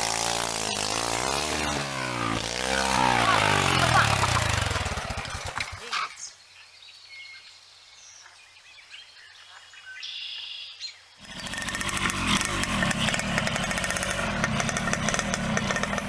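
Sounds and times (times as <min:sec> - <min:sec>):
small engine puttering: 0:00.0 - 0:06.3, 0:11.2 - 0:16.0
faint bird chirps: 0:05.9 - 0:11.2.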